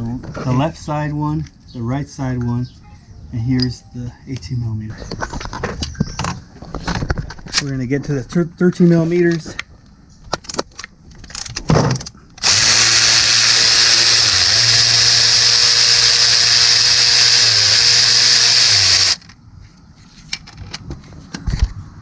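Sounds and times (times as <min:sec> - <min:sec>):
cordless power tool running: 0:12.4 - 0:19.2.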